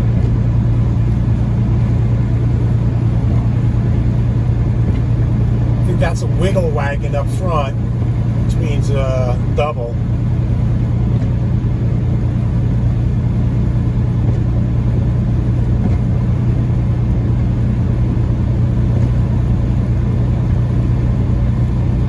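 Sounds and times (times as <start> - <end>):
truck diesel engine drone: 0.0 - 22.0
tyre and road noise: 0.0 - 22.0.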